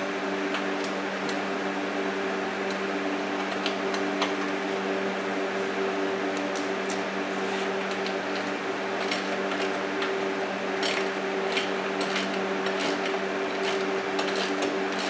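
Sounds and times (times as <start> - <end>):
steady background hum: 0.0 - 15.0
wrench clicking on metal: 9.0 - 9.8, 10.8 - 15.0.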